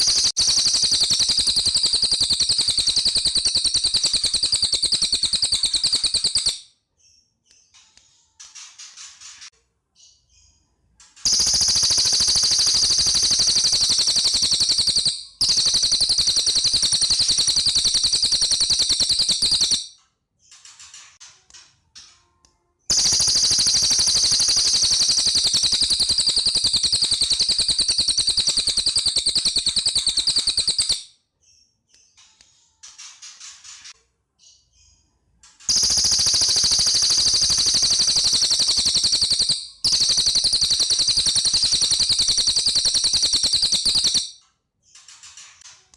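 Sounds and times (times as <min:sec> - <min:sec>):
songbird rattling trills: 0:00.0 - 0:06.6, 0:11.2 - 0:19.9, 0:22.9 - 0:31.0, 0:35.7 - 0:44.3.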